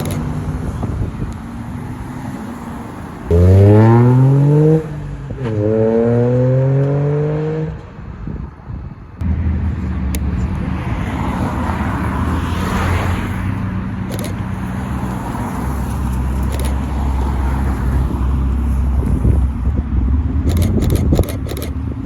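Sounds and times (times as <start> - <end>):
car accelerating hard: 3.3 - 7.8
car engine rolling past: 3.3 - 7.9.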